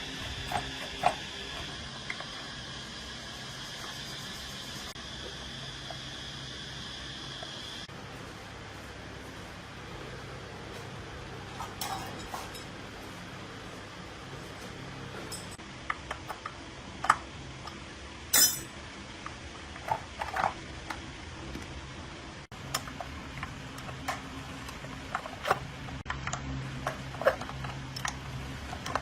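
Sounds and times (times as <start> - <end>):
metal tools clinking: 11.6 - 12.8, 15.2 - 15.6, 18.3 - 18.7.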